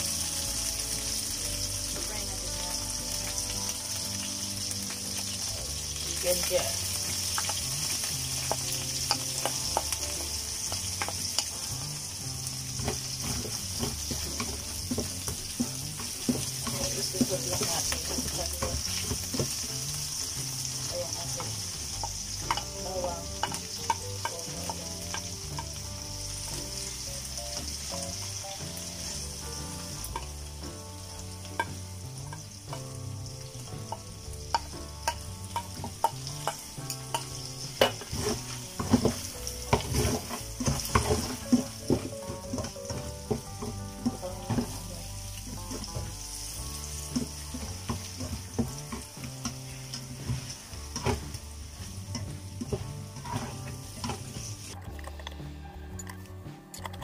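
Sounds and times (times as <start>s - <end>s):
garlic sizzling in oil: 0.0s - 54.8s
utensil clicking in pan: 7.0s - 11.6s, 21.3s - 25.9s, 33.8s - 43.0s, 56.0s - 57.0s.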